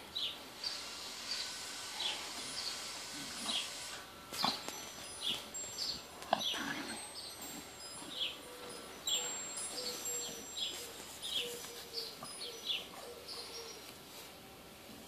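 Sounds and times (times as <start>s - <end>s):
bird chirping: 4.4s - 14.0s
rustle of grass: 9.1s - 15.0s.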